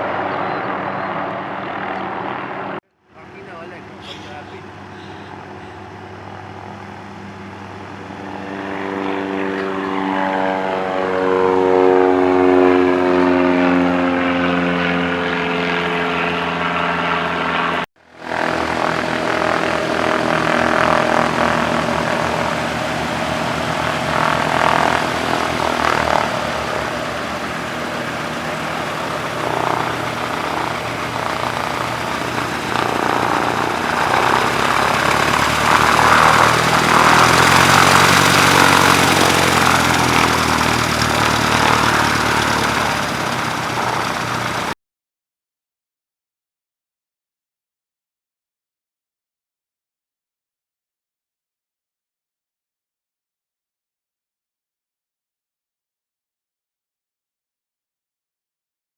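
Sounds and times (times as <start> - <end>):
propeller airplane engine: 0.0 - 44.8.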